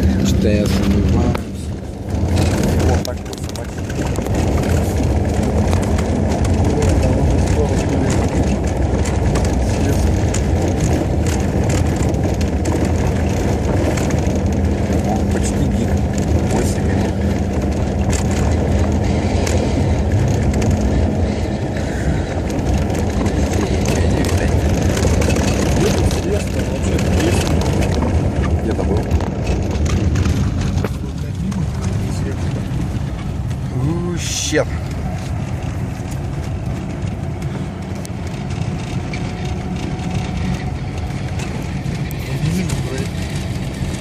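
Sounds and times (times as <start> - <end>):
car engine and road rumble: 0.0 - 44.0.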